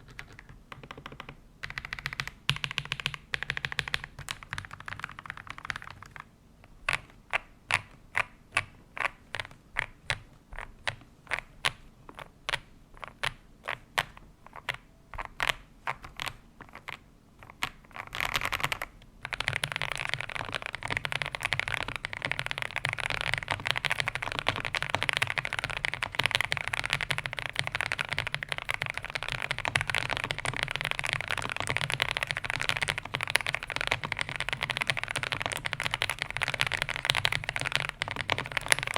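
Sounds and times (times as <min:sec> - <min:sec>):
typing on mechanical keyboard: 0:00.0 - 0:06.3, 0:14.0 - 0:38.9.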